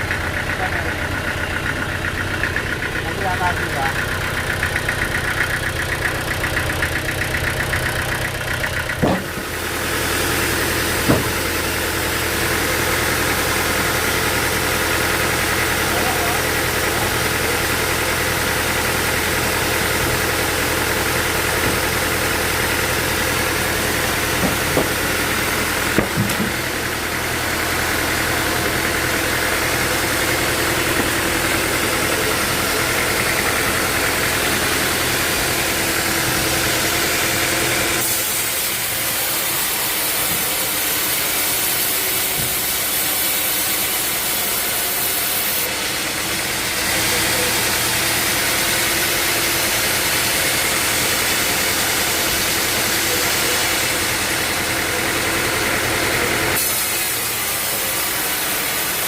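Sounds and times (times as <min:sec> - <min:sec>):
sawmill machinery hum: 0:00.0 - 0:59.0
sharp knocks: 0:08.9 - 0:09.6, 0:11.0 - 0:11.6, 0:24.3 - 0:25.2, 0:25.9 - 0:26.7.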